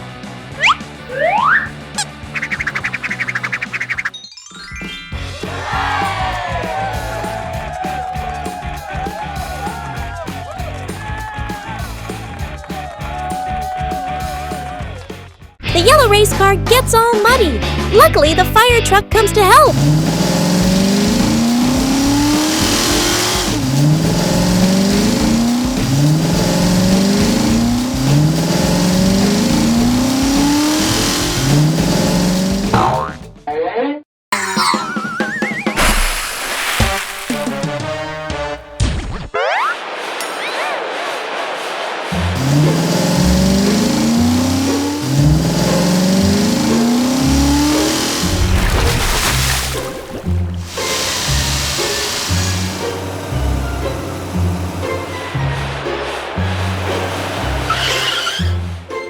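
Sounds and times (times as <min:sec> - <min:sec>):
cartoon car engine accelerating: 0:00.5 - 0:05.0, 0:15.7 - 0:33.2, 0:42.0 - 0:59.0.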